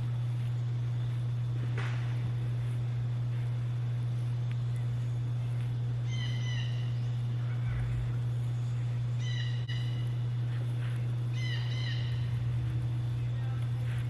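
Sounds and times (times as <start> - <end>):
steady low hum: 0.0 - 14.0
bird calling: 3.3 - 14.0.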